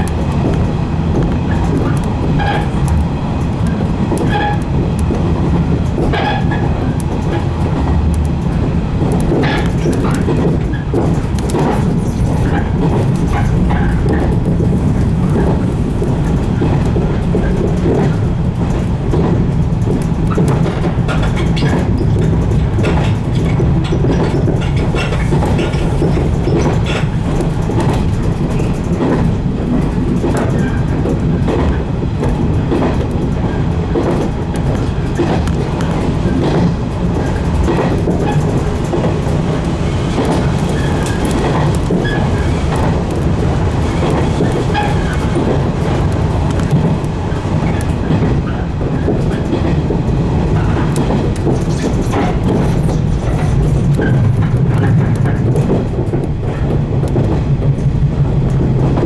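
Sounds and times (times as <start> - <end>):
clicks from the track: 0.0 - 59.0
electric train running: 19.6 - 56.8.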